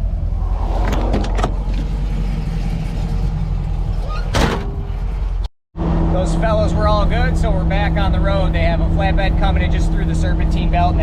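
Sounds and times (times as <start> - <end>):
car engine running: 0.4 - 11.0.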